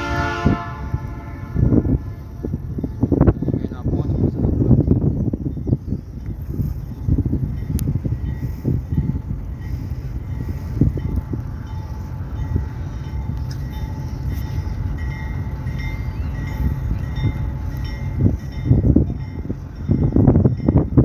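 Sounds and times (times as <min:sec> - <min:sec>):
freight train wagons rumbling: 0:00.0 - 0:21.0.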